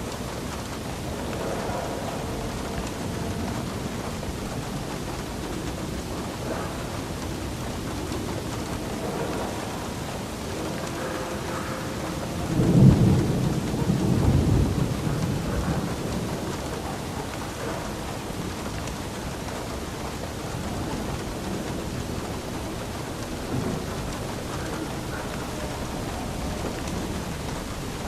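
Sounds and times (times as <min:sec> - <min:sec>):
rain falling: 0:00.0 - 0:28.0
thunder rumbling: 0:00.0 - 0:28.0.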